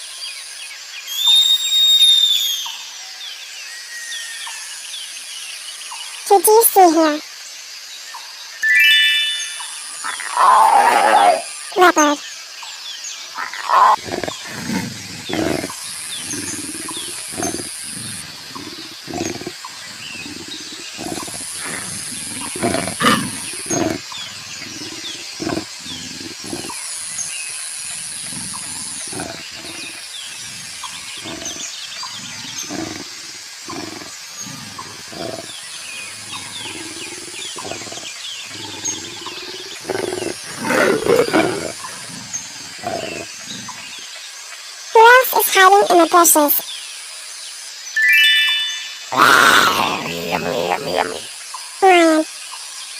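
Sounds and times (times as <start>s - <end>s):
leopard growling: 10.0s - 12.0s, 13.3s - 44.2s, 49.1s - 51.3s.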